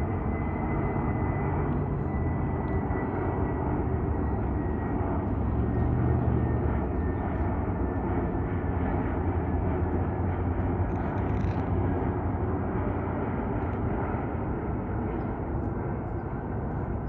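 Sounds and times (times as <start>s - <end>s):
airplane engine rush: 0.0s - 17.0s.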